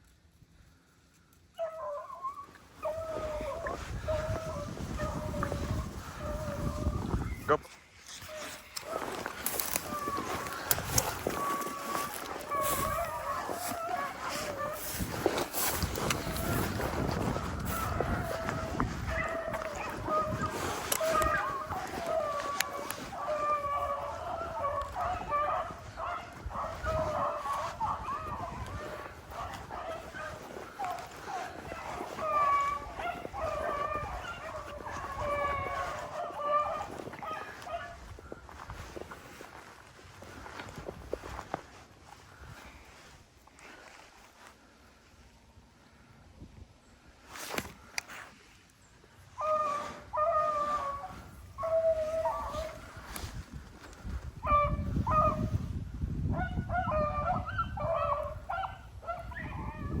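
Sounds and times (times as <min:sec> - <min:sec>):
hounds baying: 0:01.5 - 0:41.8, 0:49.3 - 0:55.7, 0:56.3 - 1:00.0.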